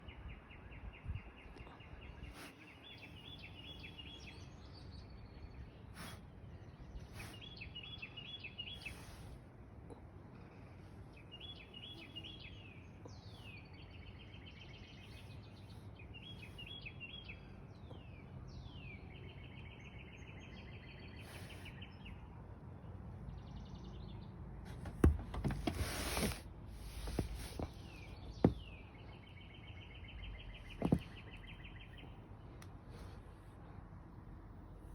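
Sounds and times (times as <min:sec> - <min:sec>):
loud rustling: 0:24.7 - 0:28.6.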